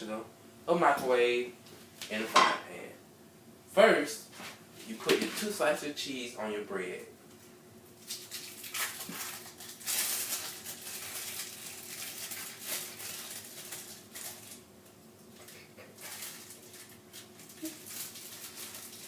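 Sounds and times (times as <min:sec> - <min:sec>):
faint steady hum: 0:00.0 - 0:19.0
cheese slices rustling: 0:08.0 - 0:19.0.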